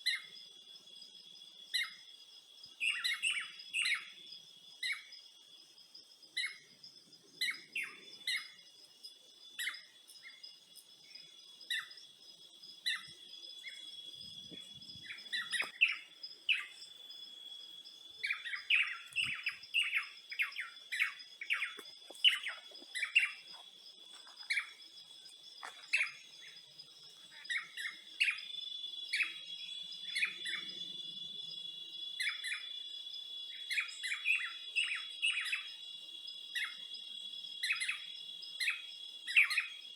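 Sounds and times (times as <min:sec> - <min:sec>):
high-pitched insect drone: 0:01.7 - 0:39.9
birds chirping: 0:06.4 - 0:31.3.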